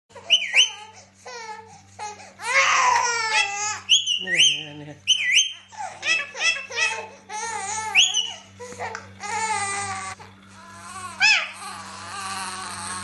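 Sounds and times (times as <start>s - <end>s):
parrot whistling and calling: 0.2s - 1.0s, 3.8s - 7.0s, 7.9s - 8.5s, 11.2s - 11.5s.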